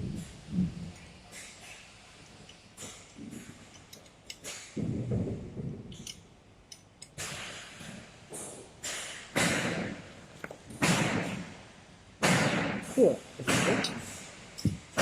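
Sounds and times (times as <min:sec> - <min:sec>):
metal parts scraping and clicking: 0:00.2 - 0:04.8, 0:05.9 - 0:08.0, 0:13.4 - 0:15.0.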